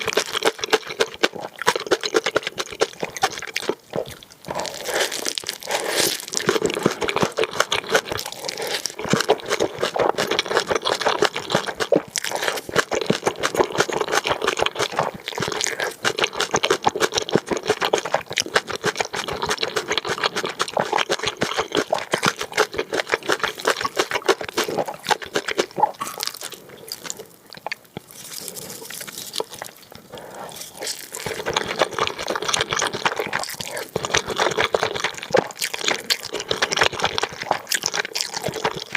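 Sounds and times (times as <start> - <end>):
crunching food: 0.0 - 38.9
wet chewing of noodles: 0.0 - 38.9
mouth smacks: 20.6 - 38.9.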